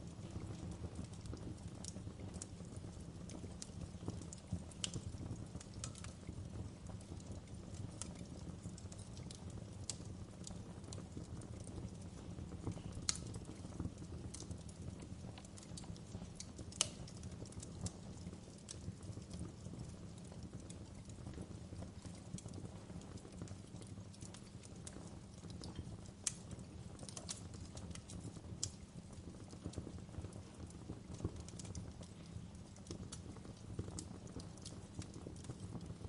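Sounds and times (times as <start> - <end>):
low rumble of flames: 0.0 - 36.0
wood fire crackling: 0.0 - 36.0.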